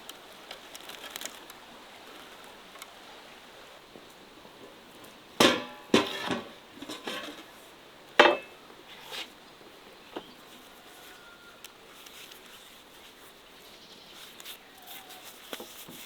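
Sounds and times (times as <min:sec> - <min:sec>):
cookware clanking: 0:05.4 - 0:07.5, 0:08.2 - 0:08.6.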